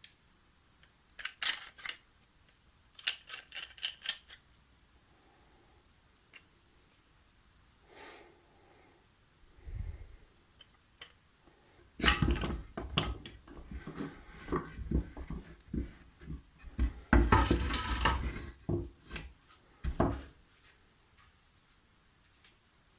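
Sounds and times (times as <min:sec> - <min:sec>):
hard objects clattering: 0:12.0 - 0:19.2.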